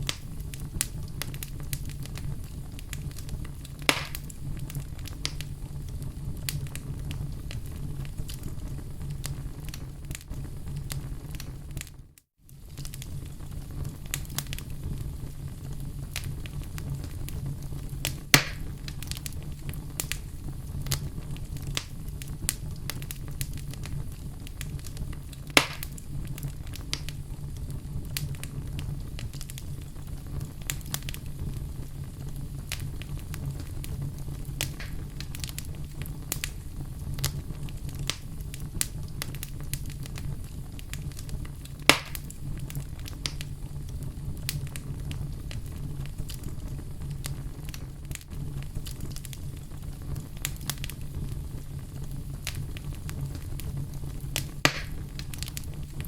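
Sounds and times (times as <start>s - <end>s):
fire rumbling and crackling: 0.0s - 56.0s
loud sharp pops: 3.8s - 4.3s, 18.3s - 18.7s, 25.5s - 26.0s, 34.6s - 35.4s, 41.9s - 42.3s, 54.4s - 55.6s.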